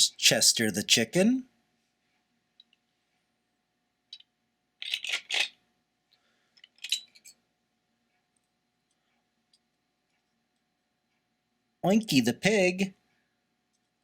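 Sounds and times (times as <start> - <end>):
plastic toy bricks clattering: 4.2 - 5.6.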